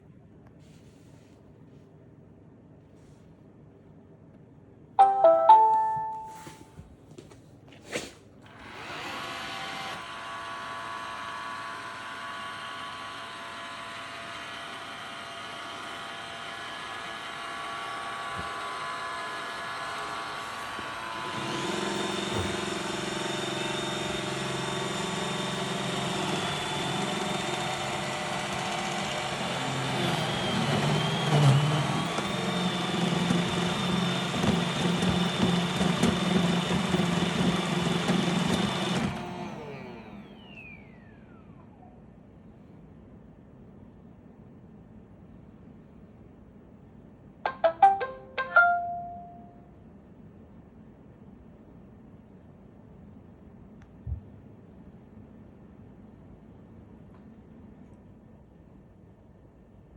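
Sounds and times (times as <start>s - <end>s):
robot vacuum beep: 5.0s - 6.6s
robot vacuum motor hum: 8.4s - 41.8s.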